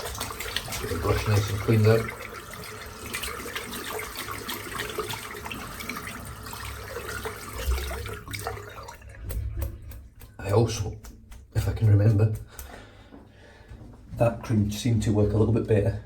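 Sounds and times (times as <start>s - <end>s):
water running from a tap: 0.0s - 12.6s
shaving brush rinsed under water: 0.0s - 12.7s.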